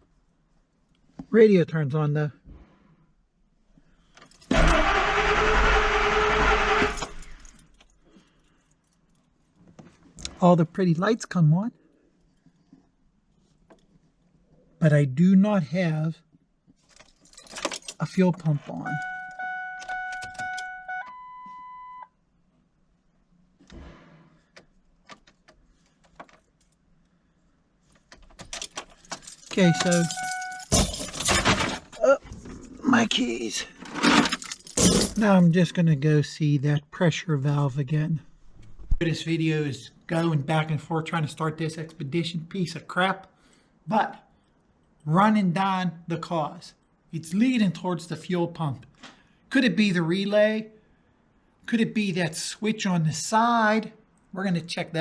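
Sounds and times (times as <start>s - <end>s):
car engine cranking: 4.5s - 7.6s
ignition keys clicking and jingling: 16.9s - 18.0s, 18.8s - 21.3s, 27.9s - 31.9s, 34.0s - 35.2s
dashboard warning chime: 18.8s - 22.1s, 29.5s - 30.8s.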